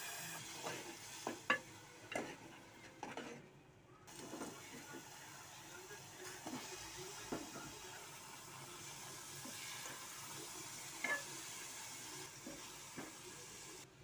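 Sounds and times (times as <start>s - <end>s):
vegetables sizzling in pot: 0.0s - 3.4s, 4.1s - 13.9s
metal spoon scraping pot: 2.1s - 3.4s.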